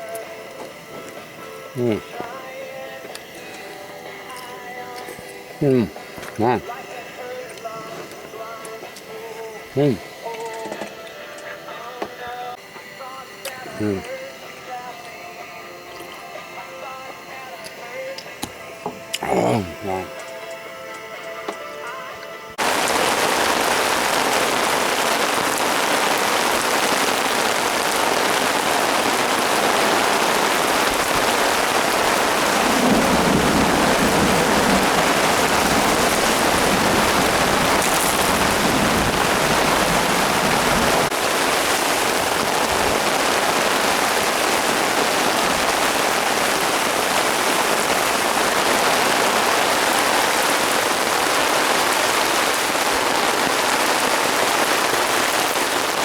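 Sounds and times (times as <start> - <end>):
heavy rain falling: 22.6 - 56.0.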